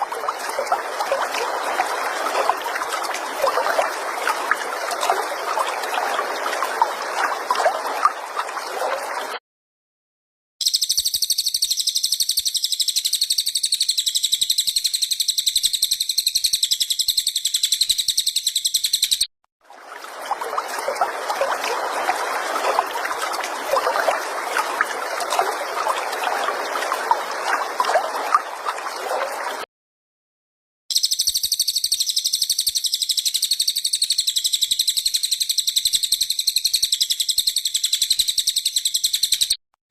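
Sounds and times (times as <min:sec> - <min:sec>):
songbird trilling: 0:10.6 - 0:19.2, 0:30.9 - 0:39.6.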